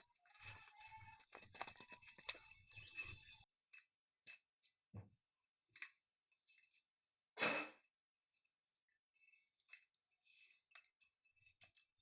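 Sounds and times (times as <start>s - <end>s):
dry tinder crackling and rustling: 0.0s - 3.5s.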